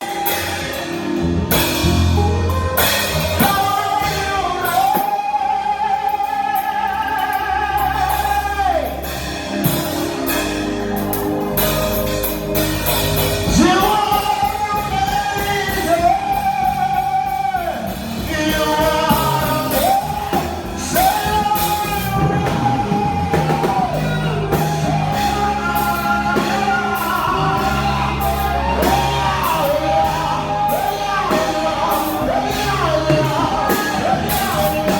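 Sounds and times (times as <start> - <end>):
band with drums bass guitar: 0.0 - 34.9
person singing sustained notes: 13.4 - 34.9.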